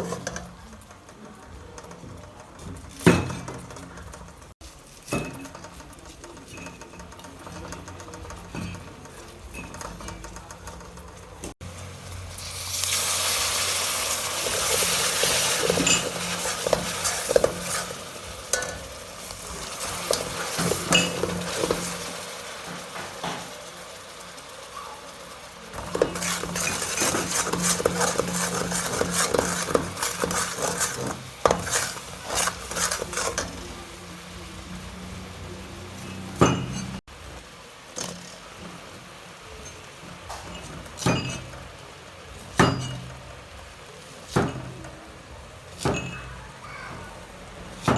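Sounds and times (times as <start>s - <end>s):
metal utensil scraping a pan: 0.0s - 0.9s, 1.5s - 11.6s, 12.3s - 23.6s, 25.7s - 34.0s, 35.9s - 37.0s
meat sizzling in a pan: 11.6s - 47.9s.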